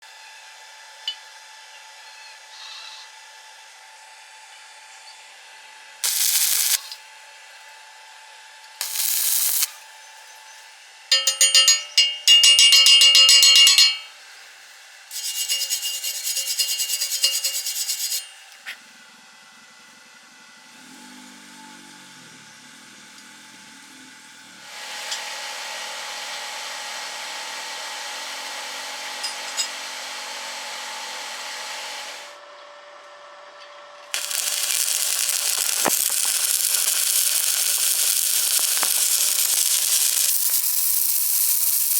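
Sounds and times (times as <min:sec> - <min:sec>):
power tool whining: 0:06.0 - 0:07.0, 0:08.8 - 0:09.9, 0:34.1 - 0:41.9
steady hiss: 0:06.0 - 0:07.0, 0:08.8 - 0:09.8, 0:34.2 - 0:41.9.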